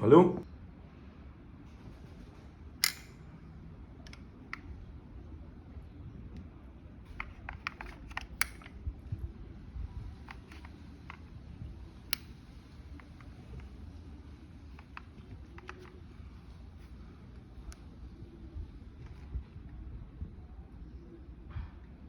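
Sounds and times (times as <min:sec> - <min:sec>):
pistol handling clicks: 0:02.8 - 0:03.2, 0:07.1 - 0:08.8, 0:10.2 - 0:11.3, 0:12.0 - 0:13.9
sharp pistol click: 0:02.8 - 0:03.2, 0:07.2 - 0:08.8.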